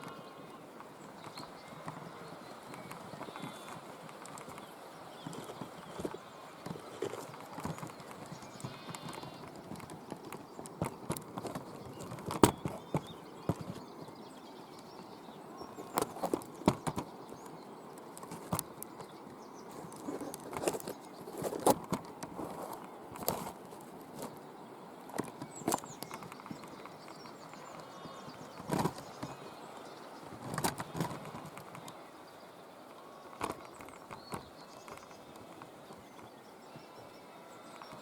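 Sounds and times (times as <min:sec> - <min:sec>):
faint outdoor hiss: 0:00.0 - 0:38.0.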